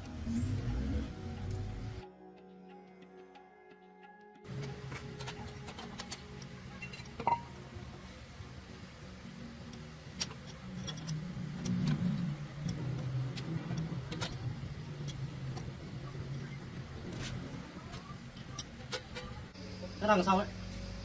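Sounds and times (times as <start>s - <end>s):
low engine drone: 0.0s - 2.1s
metallic clicks of tools: 9.7s - 15.7s.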